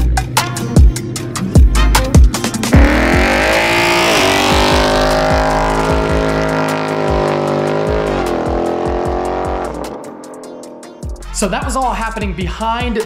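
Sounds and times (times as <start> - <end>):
car engine revving high: 2.7 - 10.9.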